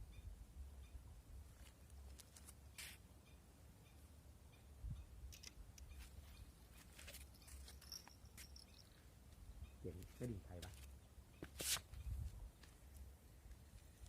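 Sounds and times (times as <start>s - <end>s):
faint low wind rumble: 3.2s - 6.8s, 7.9s - 14.0s.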